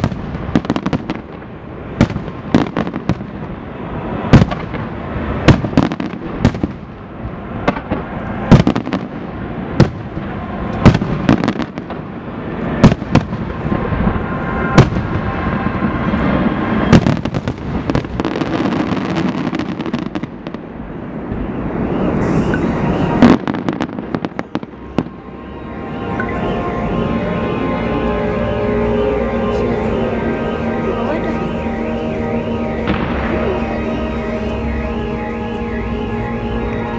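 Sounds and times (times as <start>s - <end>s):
fireworks crackling and rumbling: 0.0s - 36.9s
music: 25.2s - 36.9s.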